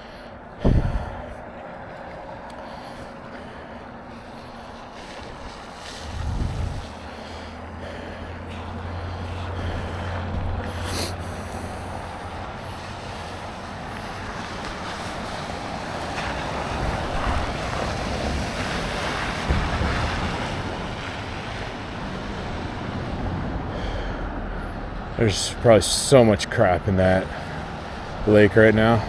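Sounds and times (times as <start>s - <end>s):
wind rushing over microphone: 0.6s - 1.6s, 4.7s - 7.8s.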